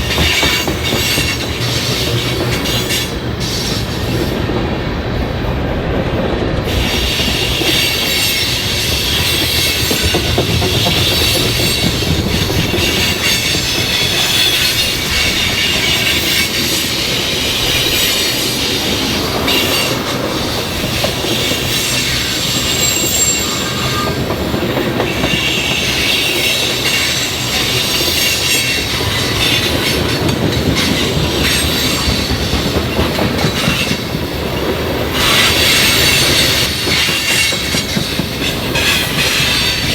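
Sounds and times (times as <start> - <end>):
wheels clacking over rail joints: 0.0 - 4.7, 6.6 - 39.9
high wheel squeal: 11.0 - 30.2, 35.2 - 39.9.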